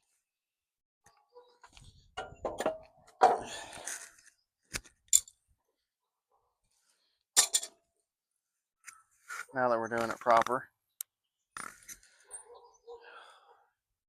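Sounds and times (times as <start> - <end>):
metal bolts and tools clinking: 2.2 - 3.4, 5.0 - 5.4, 7.4 - 7.8.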